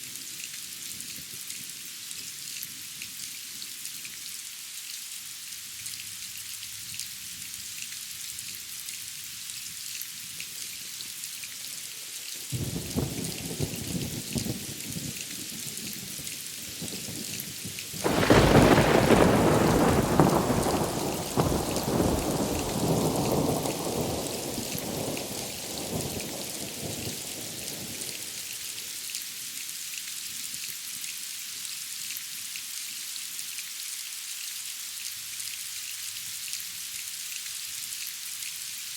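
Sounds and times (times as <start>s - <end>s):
rain hiss: 0.0s - 38.9s
loud thunderclap: 18.0s - 28.0s
thunder rumbling: 18.0s - 28.3s.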